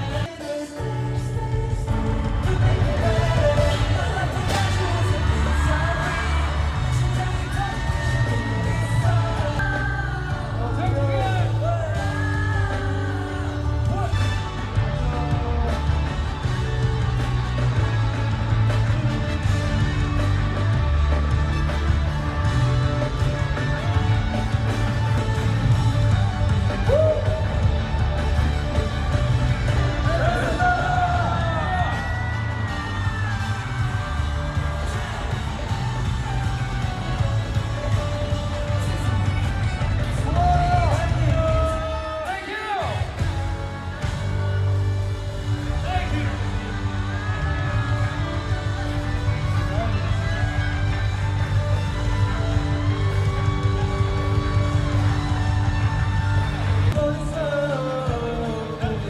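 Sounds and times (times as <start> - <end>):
heavy bass line: 0.0 - 42.0, 43.0 - 59.0
live pop music with singing: 0.0 - 59.0.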